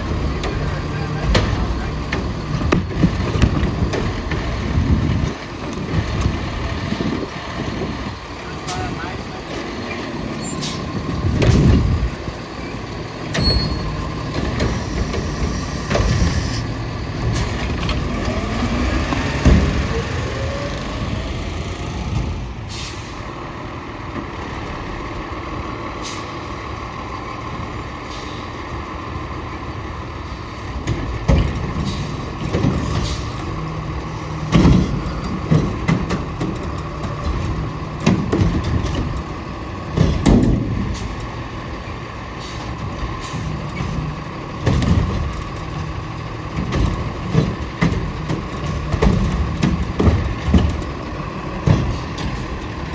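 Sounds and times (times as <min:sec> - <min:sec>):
garbage truck diesel engine: 0:00.0 - 0:52.9
air brake hisses: 0:22.7 - 0:23.3, 0:26.0 - 0:26.5.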